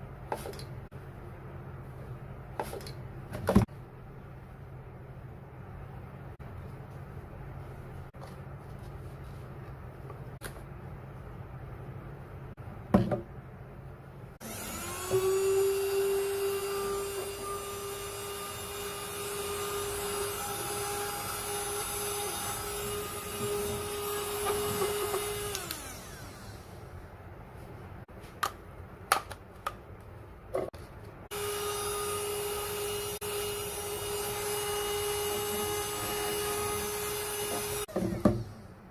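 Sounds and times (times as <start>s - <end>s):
handheld vacuum motor whine: 14.4s - 26.8s, 31.3s - 38.5s.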